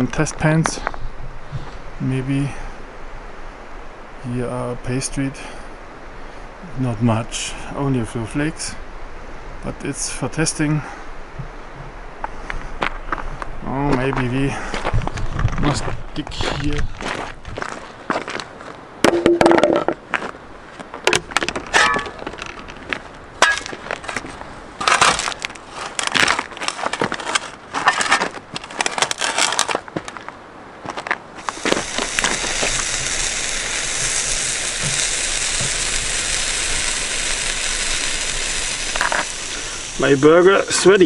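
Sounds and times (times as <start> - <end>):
tool scraping stones: 21.5 - 22.8, 23.4 - 29.8, 31.4 - 33.3, 38.8 - 41.0
burger sizzling on hot stone: 31.4 - 41.0.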